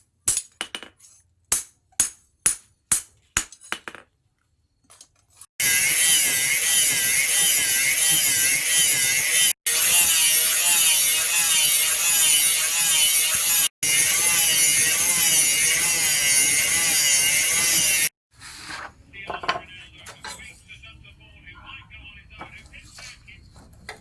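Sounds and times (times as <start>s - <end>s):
grinder grinding steel blade: 5.6s - 18.1s.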